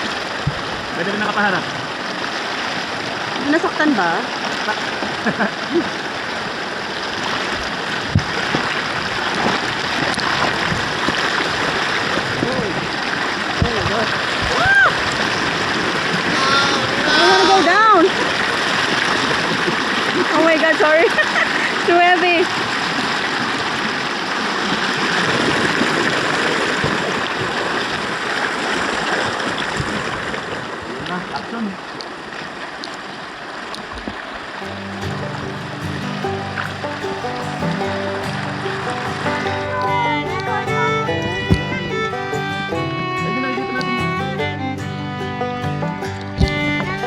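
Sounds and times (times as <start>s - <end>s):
river water rushing: 0.0s - 47.0s
sharp knock: 41.4s - 41.9s, 46.4s - 46.9s.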